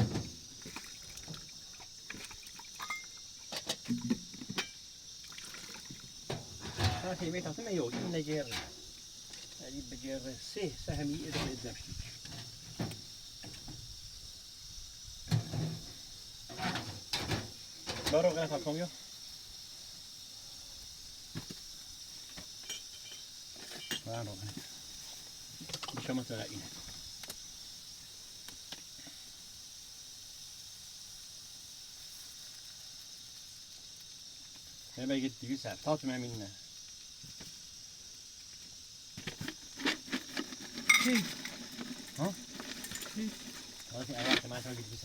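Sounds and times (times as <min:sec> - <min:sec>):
knocks and thumps: 0:00.0 - 0:01.4, 0:06.2 - 0:08.9, 0:10.9 - 0:13.9, 0:15.3 - 0:18.3
crickets chirring: 0:00.0 - 0:45.0
faint steady hiss: 0:00.0 - 0:45.0.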